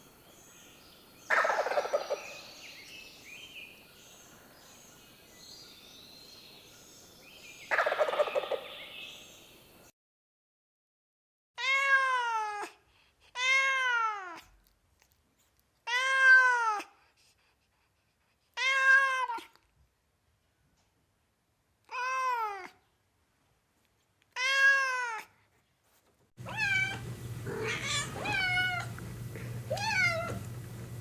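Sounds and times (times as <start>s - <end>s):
cat meowing: 26.4s - 29.0s, 29.7s - 30.5s
low hum: 26.4s - 31.0s.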